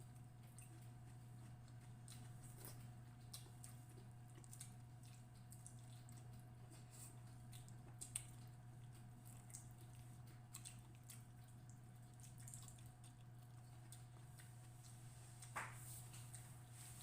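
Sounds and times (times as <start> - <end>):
chewing and handling food: 0.0 - 17.0
low electrical hum: 0.0 - 17.0.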